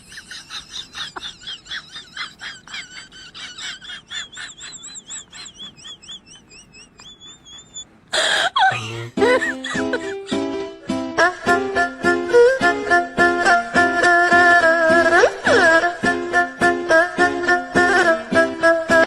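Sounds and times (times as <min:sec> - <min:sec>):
small bird chirping: 0:04.4 - 0:08.0.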